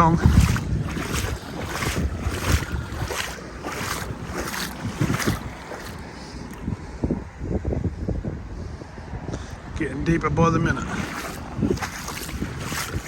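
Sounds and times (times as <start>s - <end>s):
water sloshing around wading legs: 0.0s - 6.7s, 10.7s - 13.0s
wind buffeting microphone: 0.0s - 13.0s.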